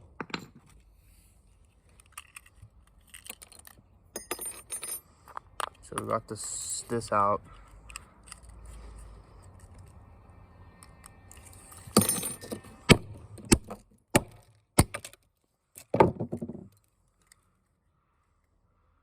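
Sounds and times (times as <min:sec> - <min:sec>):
small plastic and metal pieces rattling: 0:01.6 - 0:03.9.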